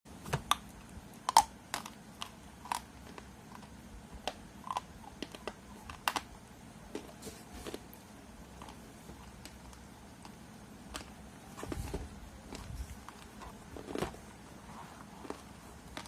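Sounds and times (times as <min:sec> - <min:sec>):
crunching of hard brittle food: 0:01.2 - 0:11.9.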